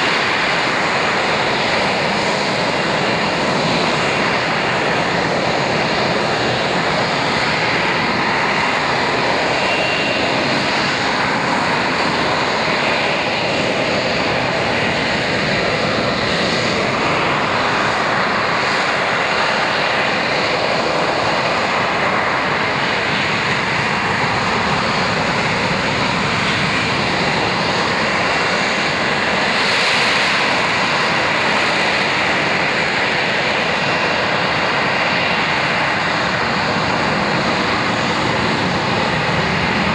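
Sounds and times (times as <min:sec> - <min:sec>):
faint high whine: 0:00.0 - 0:27.5
jet engine running: 0:00.0 - 0:39.9.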